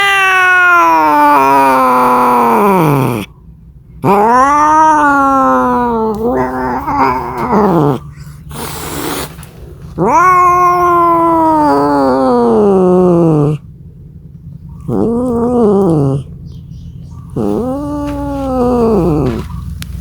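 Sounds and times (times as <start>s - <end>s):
cat yowling: 0.0s - 3.3s, 4.0s - 13.7s, 14.8s - 16.4s, 17.2s - 19.7s
cat hissing: 4.0s - 13.6s, 14.8s - 16.4s, 17.3s - 19.7s.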